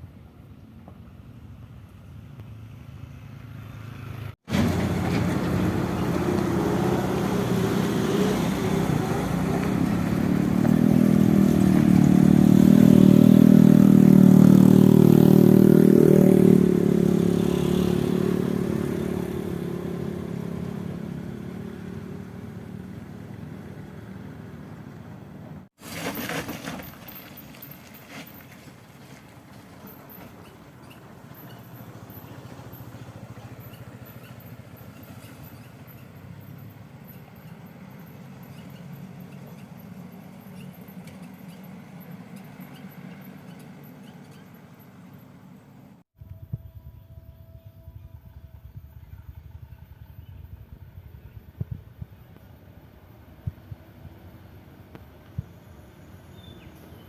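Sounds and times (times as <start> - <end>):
truck diesel engine under load: 2.4 - 46.5.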